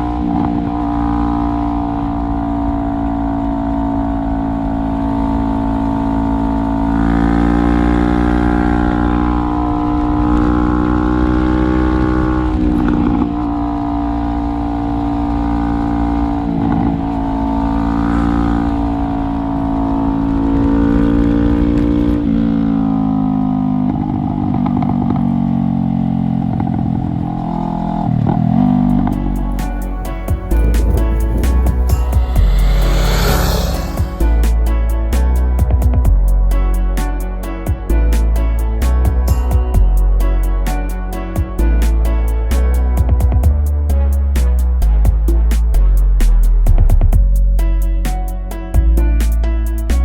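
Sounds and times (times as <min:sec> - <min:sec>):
motorcycle engine while riding: 0:00.0 - 0:34.7
wind rumble: 0:29.0 - 0:35.2.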